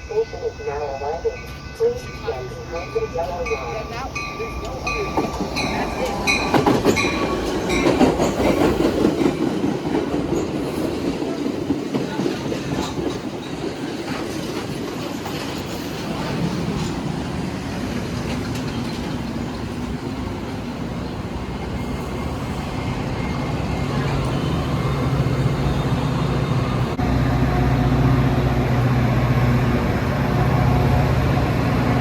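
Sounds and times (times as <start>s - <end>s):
train wheels clacking over rail joints: 4.6s - 17.2s.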